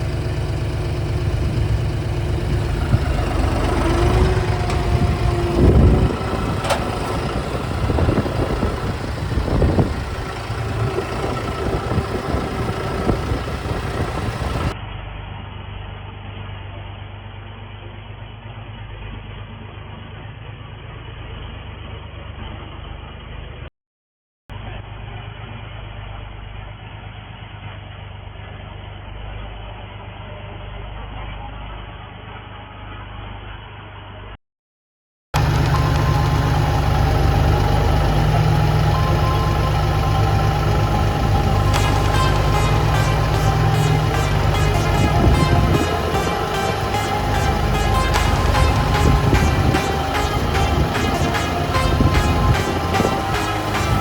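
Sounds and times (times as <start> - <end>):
tractor engine running: 0.0 - 14.8, 35.4 - 54.0.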